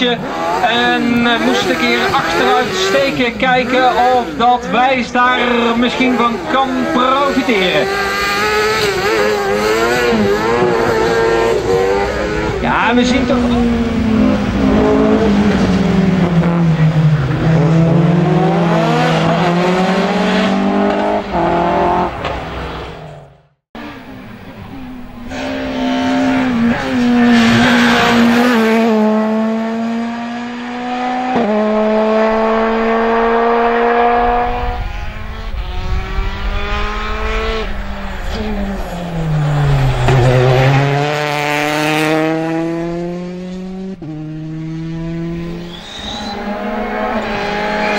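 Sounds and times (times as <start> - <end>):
rally car engines racing: 0.0 - 47.9
gear changes: 23.8 - 47.9.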